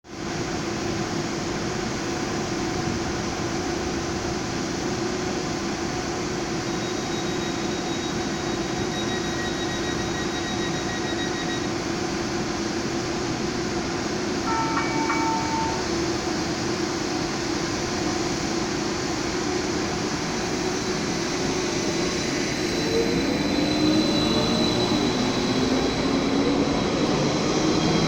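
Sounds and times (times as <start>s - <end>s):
tram mechanical hum: 0.1s - 28.0s
short pitched signal: 14.5s - 16.2s.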